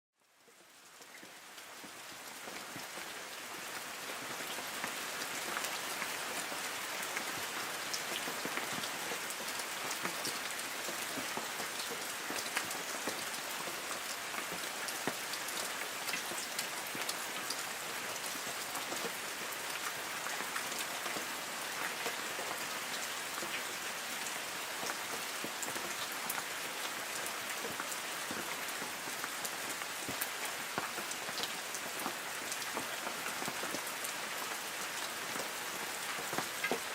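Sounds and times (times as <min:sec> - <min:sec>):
light rain hissing: 0:00.2 - 0:36.9
raindrops ticking on leaves: 0:00.2 - 0:36.9.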